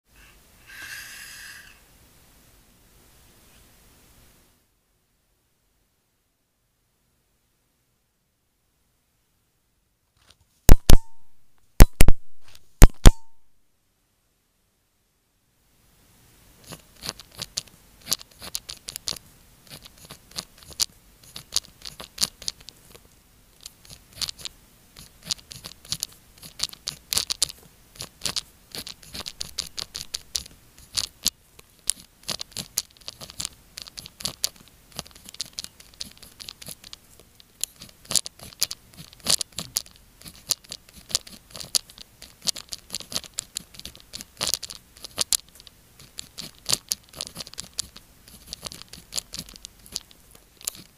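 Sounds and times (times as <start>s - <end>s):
pen scratching on paper: 16.6s - 22.5s.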